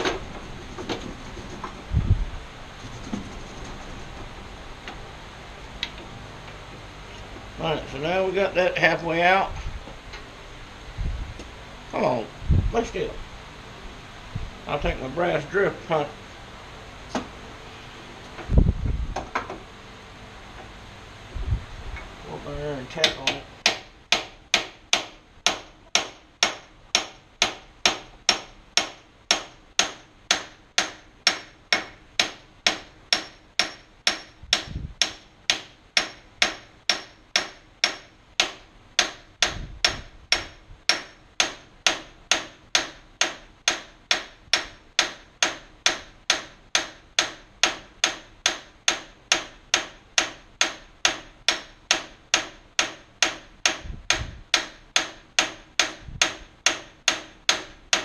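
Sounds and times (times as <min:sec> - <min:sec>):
hammer tapping metal punch: 0:23.0 - 0:58.0.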